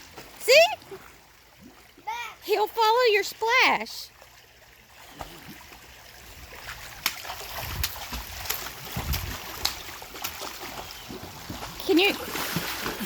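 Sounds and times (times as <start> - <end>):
swimmer kicking water splashing: 5.0 - 13.0
short sharp splashes: 6.7 - 13.0.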